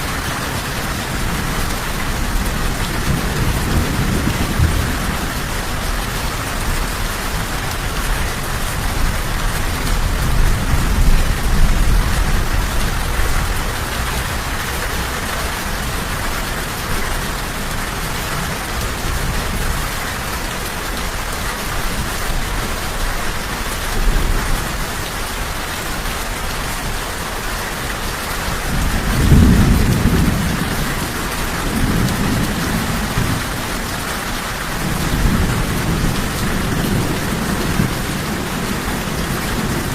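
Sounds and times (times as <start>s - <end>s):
heavy rain hissing: 0.0s - 39.9s
rolling thunder: 0.8s - 14.8s, 28.5s - 39.9s.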